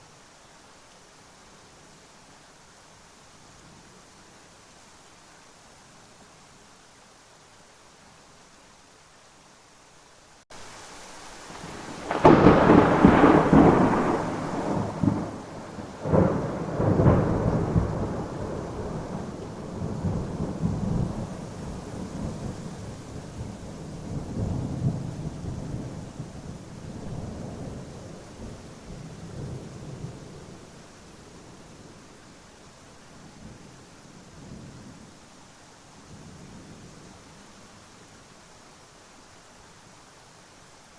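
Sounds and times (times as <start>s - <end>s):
steady rain hissing: 0.0s - 40.9s
thunder cracking and rumbling: 11.6s - 22.5s.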